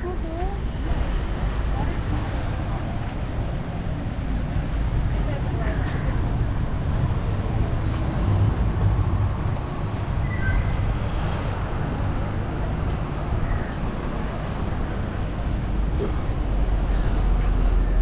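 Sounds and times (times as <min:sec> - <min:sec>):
moving vehicle rumble: 0:00.0 - 0:18.0.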